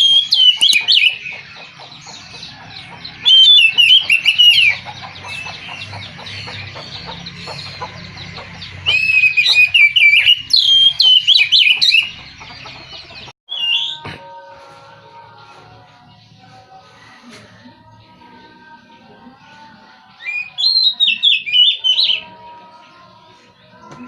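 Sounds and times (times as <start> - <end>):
bird singing whistled phrases: 0.0 - 1.2, 8.9 - 12.1, 13.5 - 14.0, 20.2 - 22.3.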